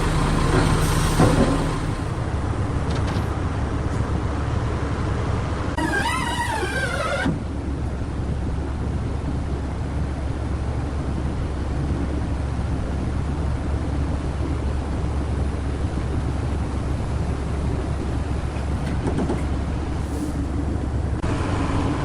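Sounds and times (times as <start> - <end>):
large engine rumbling: 0.0 - 22.0
short wavering squeal: 5.8 - 7.4.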